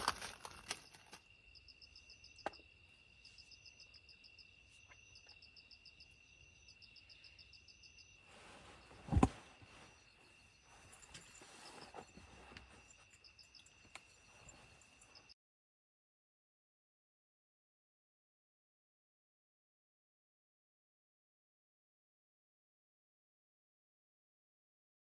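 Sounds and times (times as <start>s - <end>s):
insects chirping rapidly: 0.0s - 15.4s
insects trilling: 0.0s - 15.4s.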